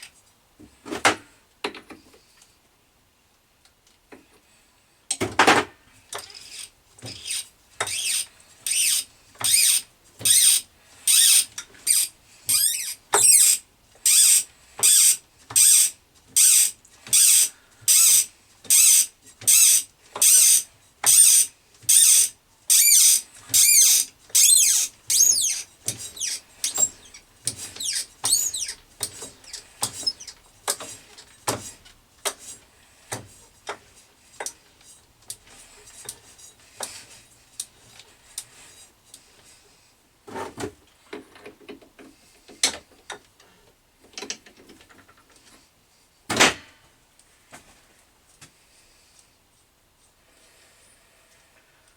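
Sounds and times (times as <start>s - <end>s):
tap squeaking cutting thread in brass: 6.2s - 30.9s.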